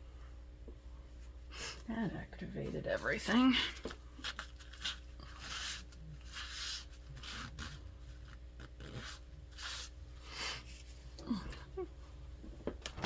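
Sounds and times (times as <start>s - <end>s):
painting tools scraping paper: 4.2s - 10.0s.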